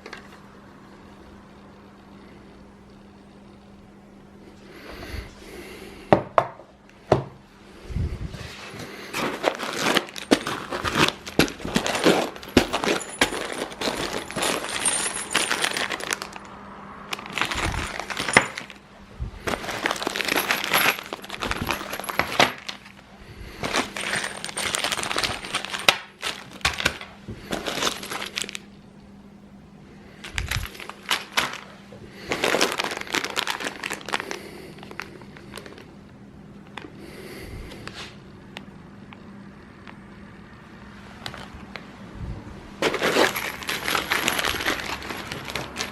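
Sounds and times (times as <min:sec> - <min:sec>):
steady low hum: 0:00.0 - 0:45.9
packaging rustling: 0:08.7 - 0:28.6, 0:30.2 - 0:36.0, 0:42.8 - 0:45.9
hard pieces clicking and clinking: 0:09.2 - 0:16.5, 0:17.2 - 0:18.8, 0:19.5 - 0:22.9, 0:23.6 - 0:28.6.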